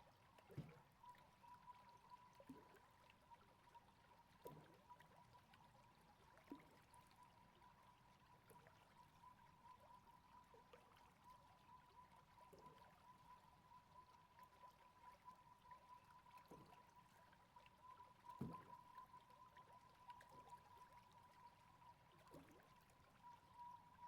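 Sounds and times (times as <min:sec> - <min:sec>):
faint river water flowing: 0:00.0 - 0:24.0
faint steady high tone: 0:06.5 - 0:24.0.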